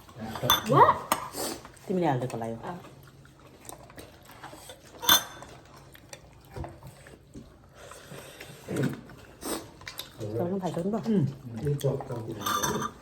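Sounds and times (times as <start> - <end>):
plates and cutlery clinking: 0.2 - 1.4, 4.9 - 5.7, 11.6 - 13.0.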